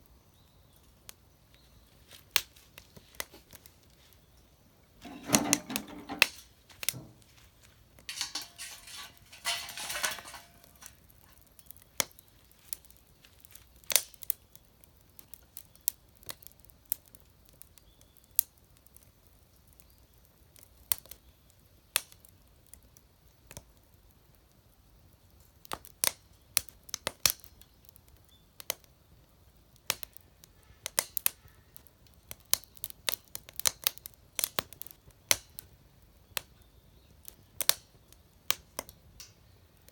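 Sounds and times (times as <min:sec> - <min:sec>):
wood fire crackling: 0:00.0 - 0:39.9
rustling: 0:05.0 - 0:11.5.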